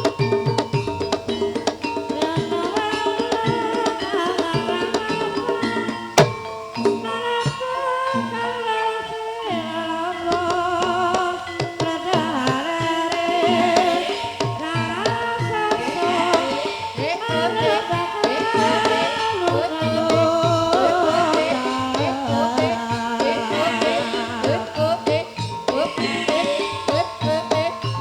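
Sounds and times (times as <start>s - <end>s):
hand drum strokes: 0.0s - 7.6s
held pitched tones: 0.0s - 28.0s
wavering sung melody: 0.0s - 28.0s.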